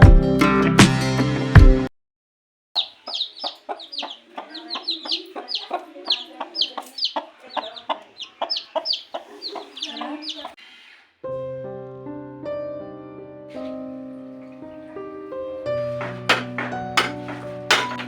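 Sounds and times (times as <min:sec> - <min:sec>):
music: 0:00.0 - 0:01.9, 0:11.3 - 0:18.0
birds calling in short falling calls: 0:02.8 - 0:10.6.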